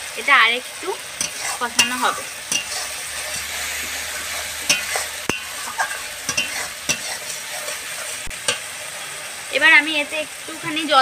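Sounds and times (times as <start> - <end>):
food sizzling in oil: 0.0 - 11.0
metal spatula scraping pan: 1.1 - 8.7
spatula clicking against pan: 4.7 - 7.1.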